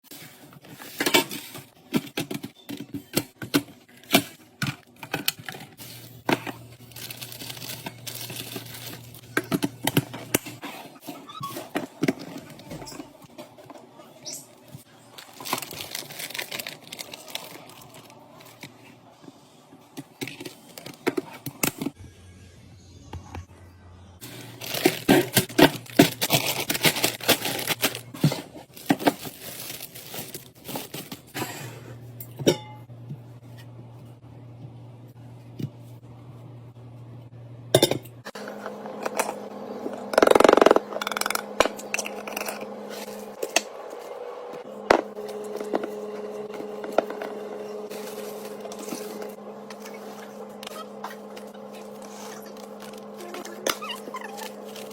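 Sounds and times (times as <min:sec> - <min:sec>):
plastic packaging crinkling: 0:05.2 - 0:09.8, 0:15.0 - 0:18.8, 0:24.2 - 0:31.4, 0:51.0 - 0:54.9.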